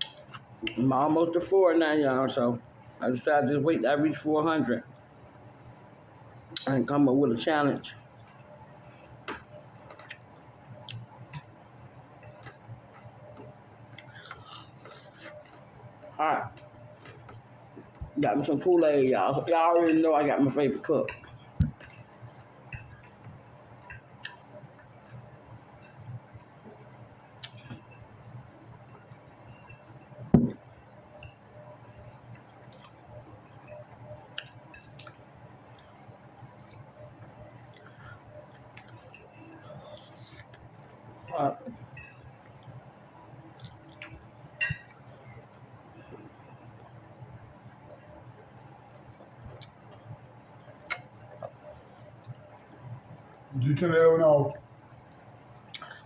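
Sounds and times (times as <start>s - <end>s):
faint chewing: 8.2s - 18.2s, 21.2s - 42.9s
utensils and dishes clinking: 44.6s - 45.0s.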